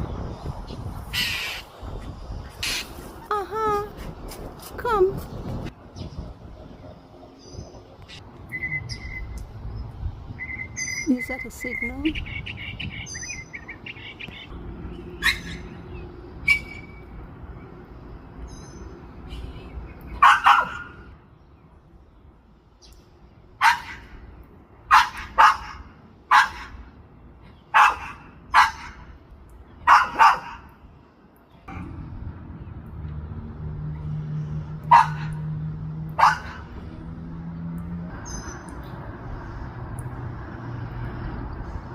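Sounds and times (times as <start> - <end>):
bird whistles and chirps: 8.5 - 9.4, 10.4 - 14.5, 16.4 - 17.0
dog barking: 20.2 - 21.0, 23.6 - 24.1, 24.9 - 26.8, 27.7 - 29.0, 29.9 - 30.7, 34.9 - 35.4, 36.2 - 36.7.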